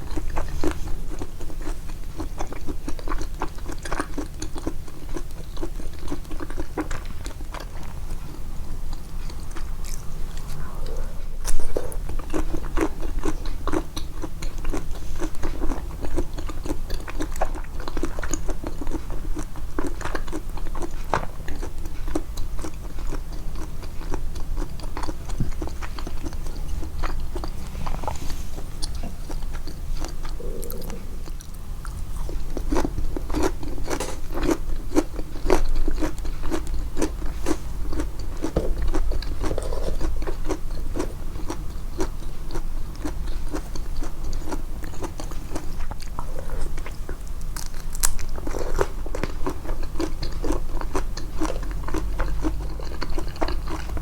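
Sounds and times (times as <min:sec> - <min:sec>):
crunchy chewing: 0:00.0 - 0:54.0
wet mouth clicks: 0:28.8 - 0:32.0.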